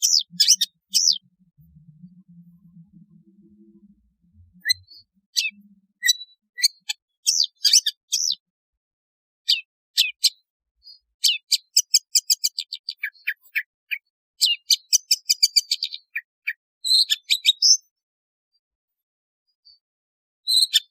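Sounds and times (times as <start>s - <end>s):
shrike calling: 0.0s - 1.2s.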